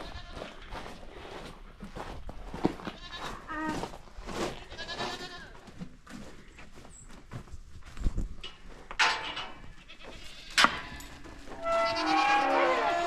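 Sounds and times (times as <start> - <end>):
goats bleating: 0.0 - 0.6, 2.9 - 3.9, 4.6 - 5.6, 11.6 - 13.0.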